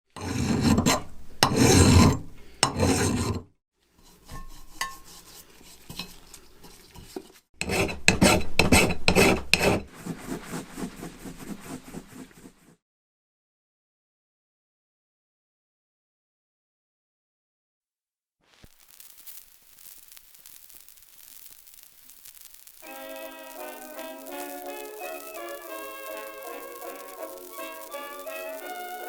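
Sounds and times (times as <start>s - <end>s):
file strokes on metal: 0.1s - 12.8s, 23.2s - 29.0s
hand tools scraping metal: 0.2s - 3.4s, 4.0s - 12.6s, 23.5s - 29.0s.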